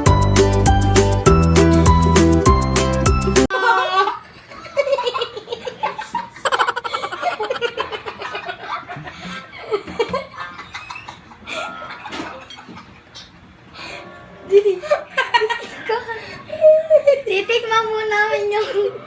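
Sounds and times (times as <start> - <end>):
people chattering and laughing: 5.8 - 9.9.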